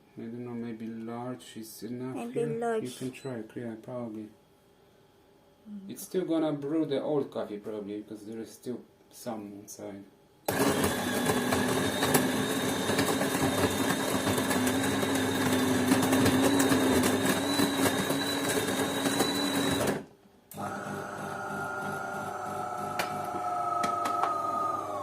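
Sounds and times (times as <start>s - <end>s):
coffee grinder grinding beans: 10.5s - 20.0s, 20.6s - 25.0s
coffee machine humming: 10.5s - 20.0s, 20.6s - 25.0s.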